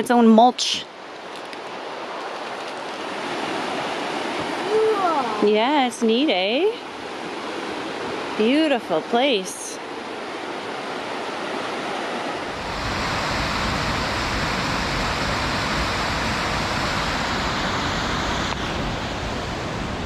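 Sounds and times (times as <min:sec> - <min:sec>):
rapids rushing: 0:10.0 - 0:20.0.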